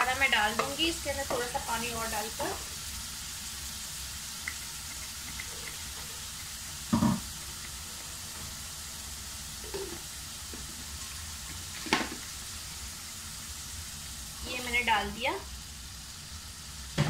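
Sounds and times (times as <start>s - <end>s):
sauce sizzling in oil: 0.0s - 17.0s
knock: 6.9s - 7.2s.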